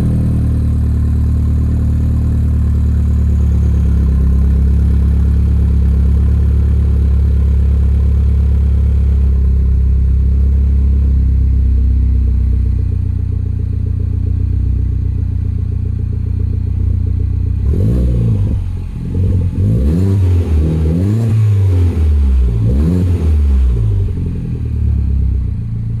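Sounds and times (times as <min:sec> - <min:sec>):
car engine idling: 0:00.0 - 0:26.0
car engine revving: 0:17.0 - 0:26.0.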